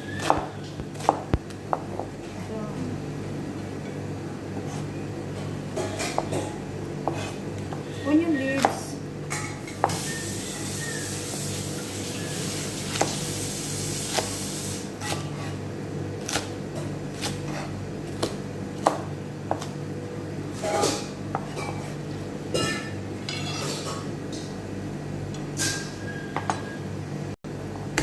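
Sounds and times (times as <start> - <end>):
steady low hum: 0.0 - 9.8
utensils and dishes clinking: 22.5 - 24.5, 25.6 - 26.8.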